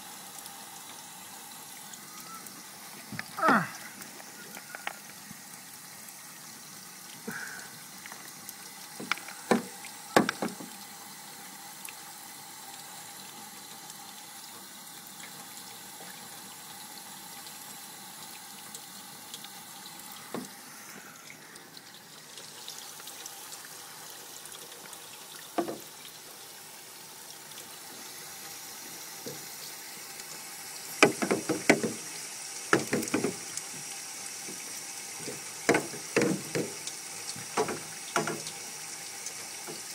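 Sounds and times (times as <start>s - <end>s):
water running: 0.0s - 39.9s
sharp knocks: 9.5s - 10.7s, 31.0s - 32.0s, 32.7s - 33.4s, 37.6s - 38.5s.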